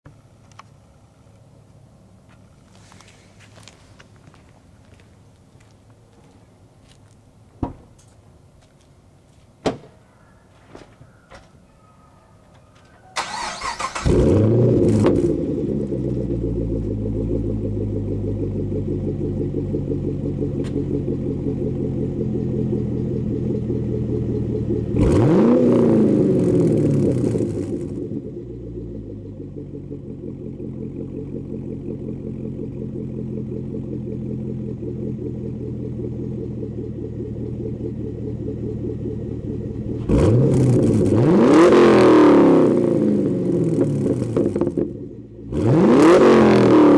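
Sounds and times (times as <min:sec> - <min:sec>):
engine cranking: 0:13.2 - 0:14.7
car engine idling: 0:13.2 - 0:46.9
engine revving: 0:13.2 - 0:46.9.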